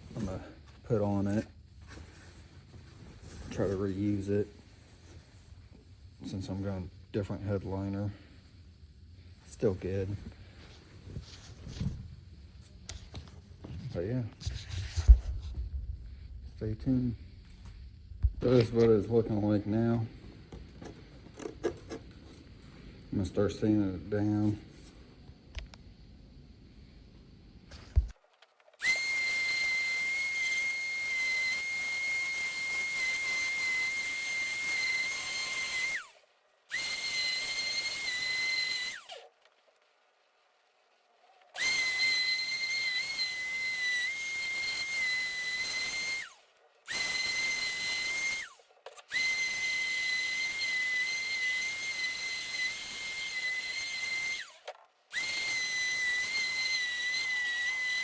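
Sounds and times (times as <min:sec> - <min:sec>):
power sander whining: 0:28.8 - 0:36.1, 0:36.7 - 0:39.3, 0:41.6 - 0:58.0.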